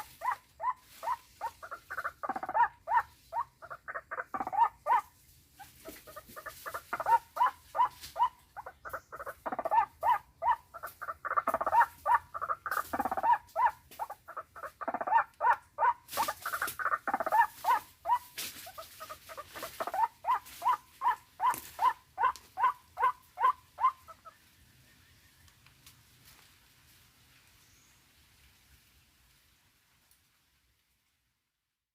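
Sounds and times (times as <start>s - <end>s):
waterhen calling harsh notes: 0.0s - 5.1s, 6.1s - 24.3s.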